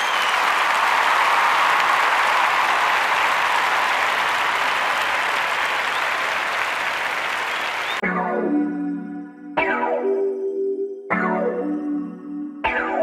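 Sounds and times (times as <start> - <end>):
crowd applause: 0.0 - 8.0.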